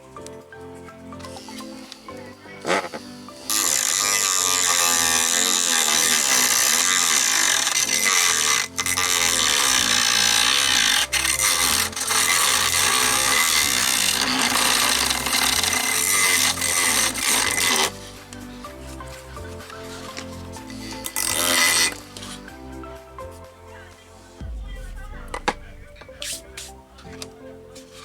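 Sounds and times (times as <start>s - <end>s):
mini grinder rasping: 1.2s - 22.6s.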